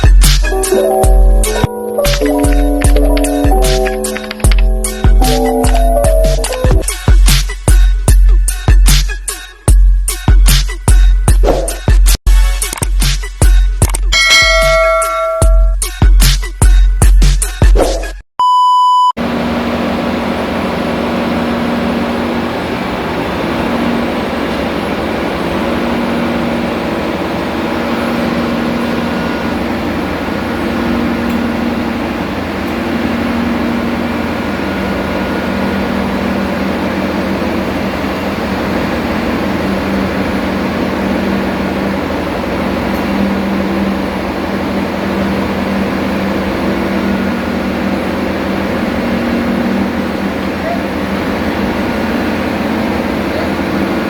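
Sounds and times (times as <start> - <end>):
engine-room machinery drone: 0.0 - 18.1, 19.2 - 54.0
short beep tone: 18.4 - 19.2.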